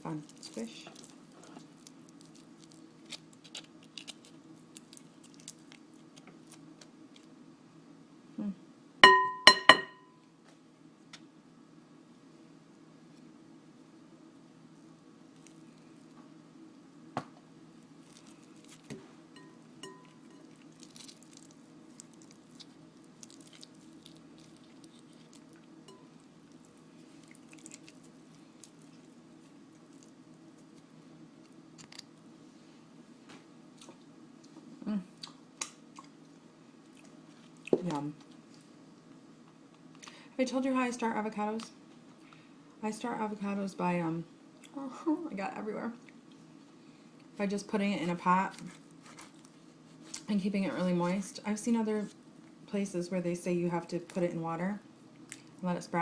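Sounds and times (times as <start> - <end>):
steady low hum: 0.0 - 56.0
wet squishing of avocado: 0.1 - 7.3, 17.8 - 19.0, 20.1 - 32.2, 48.4 - 50.4
utensil clinking against bowl: 9.0 - 10.0.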